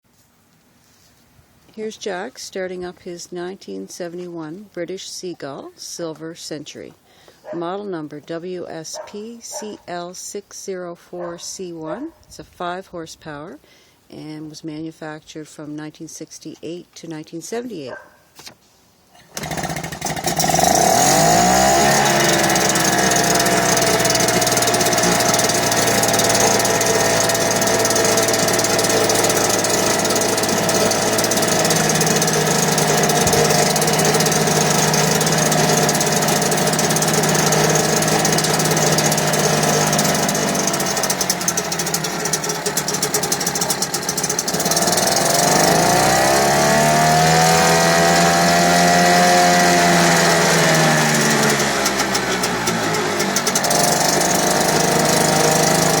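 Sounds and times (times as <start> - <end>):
outboard engine running: 19.4 - 56.0.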